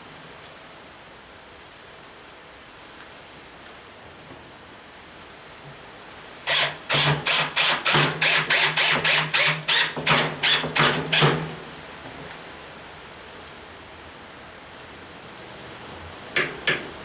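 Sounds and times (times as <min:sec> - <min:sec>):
power drill driving a fastener: 0:06.5 - 0:11.4.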